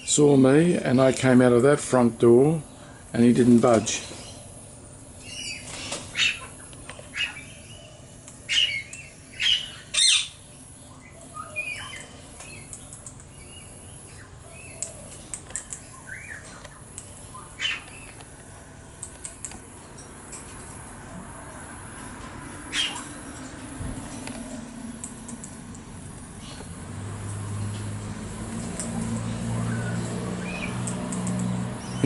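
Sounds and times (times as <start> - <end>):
faint bird chirps: 5.2 - 18.2.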